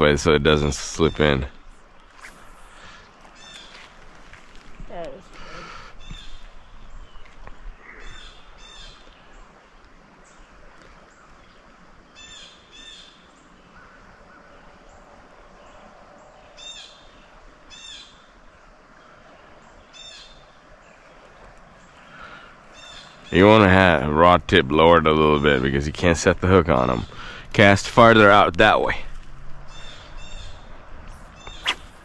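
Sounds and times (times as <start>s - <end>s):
bird calling: 2.2s - 4.1s, 4.9s - 9.5s, 10.3s - 18.4s, 19.0s - 23.6s, 29.6s - 32.0s.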